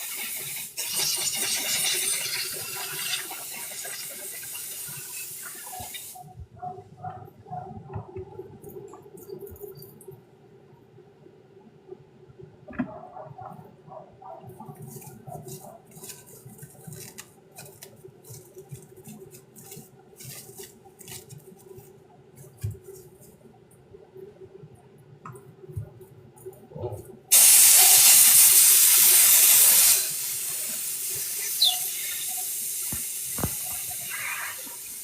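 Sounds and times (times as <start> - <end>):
water running from tap into sink: 0.0 - 6.2.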